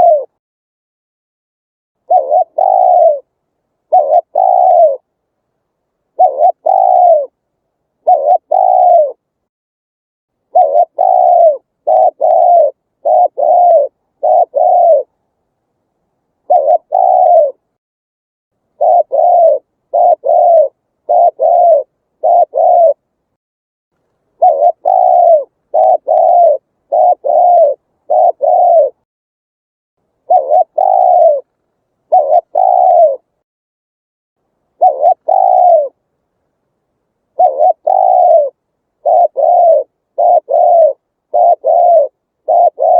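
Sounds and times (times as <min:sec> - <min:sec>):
dove cooing: 0:00.0 - 0:00.4, 0:02.0 - 0:05.1, 0:06.1 - 0:07.4, 0:08.0 - 0:09.3, 0:10.5 - 0:15.2, 0:16.4 - 0:17.7, 0:18.7 - 0:23.0, 0:24.4 - 0:29.0, 0:30.2 - 0:33.4, 0:34.7 - 0:36.0, 0:37.3 - 0:42.9.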